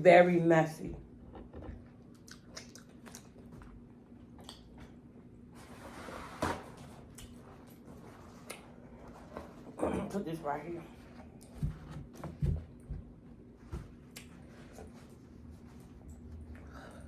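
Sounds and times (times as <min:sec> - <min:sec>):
faint steady hum: 0:00.0 - 0:17.0
chewing and mouth smacking: 0:02.0 - 0:05.0, 0:14.1 - 0:14.9.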